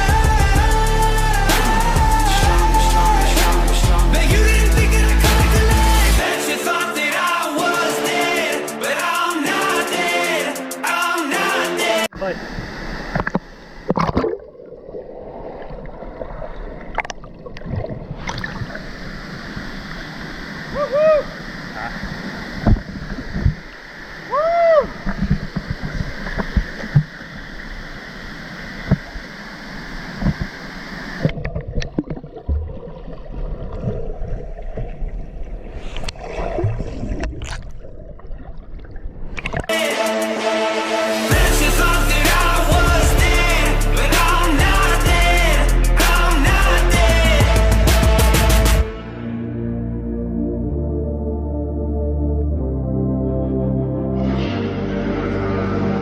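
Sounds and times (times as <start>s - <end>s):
muffled underwater bubbling: 12.1s - 20.0s, 31.1s - 39.7s
water gurgling and sloshing: 12.1s - 39.7s
water splashes: 12.1s - 39.8s.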